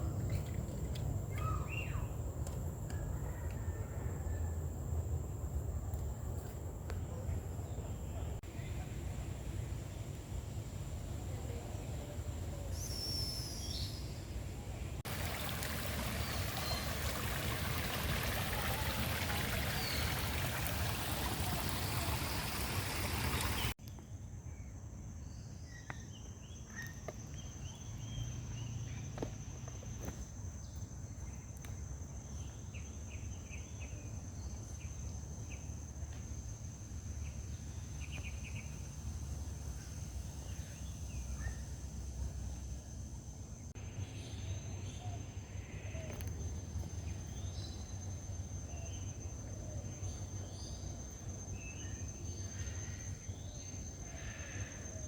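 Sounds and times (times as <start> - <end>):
running water rushing: 15.1 - 23.8.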